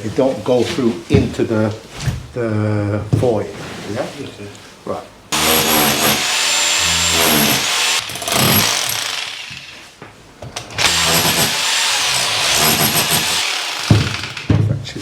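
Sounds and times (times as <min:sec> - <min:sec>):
power tool cutting into wall: 0:05.4 - 0:09.8, 0:10.7 - 0:14.5.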